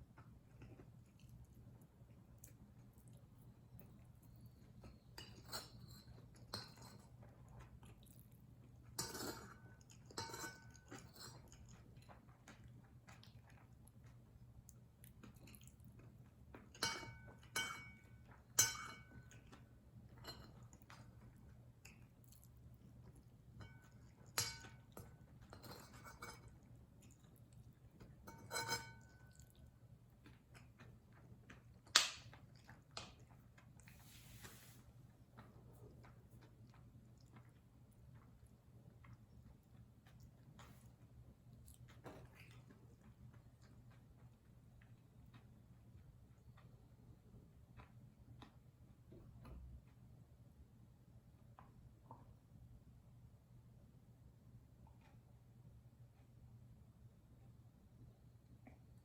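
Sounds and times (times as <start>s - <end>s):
soft chewing: 0.0s - 59.0s
spoon clinking against a dish: 5.1s - 7.2s, 9.0s - 11.8s, 16.7s - 21.0s, 23.6s - 26.6s, 28.0s - 29.5s.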